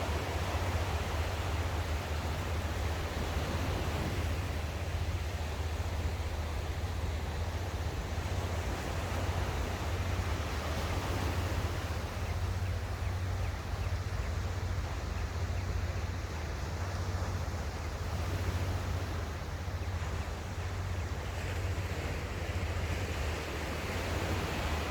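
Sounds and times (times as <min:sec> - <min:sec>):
sea waves washing onto shore: 0:16.0 - 0:24.9.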